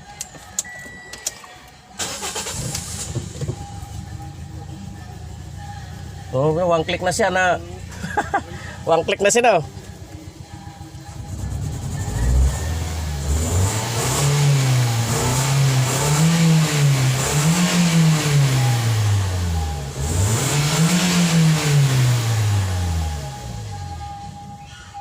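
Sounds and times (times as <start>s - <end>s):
car engine revving: 2.0s - 24.4s.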